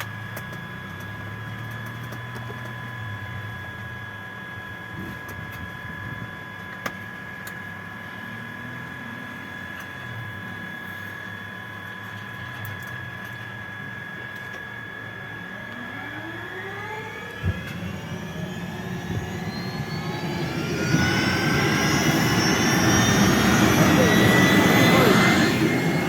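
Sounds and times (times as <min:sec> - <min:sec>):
helicopter turbine whine: 0:13.2 - 0:26.0
rushing noise: 0:18.3 - 0:26.0.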